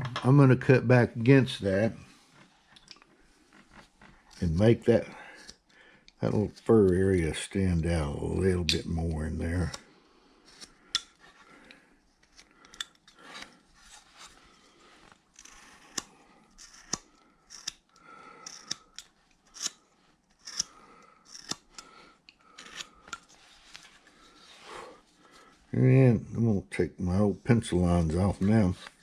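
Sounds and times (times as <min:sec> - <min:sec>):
blade carving wood: 0:15.4 - 0:17.8, 0:18.5 - 0:19.8, 0:20.4 - 0:21.8, 0:22.5 - 0:22.9.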